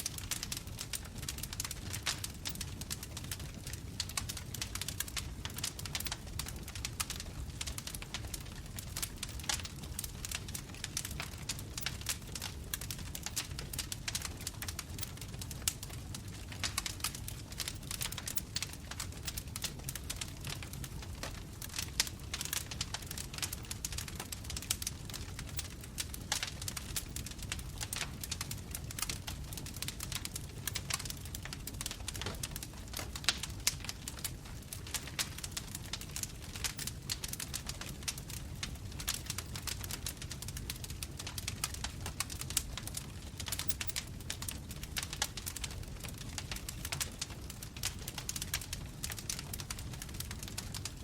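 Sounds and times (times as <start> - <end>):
bonfire wood crackling: 0.0 - 51.0
burning wood popping and snapping: 0.0 - 51.0
low rumble of flames: 0.0 - 51.0.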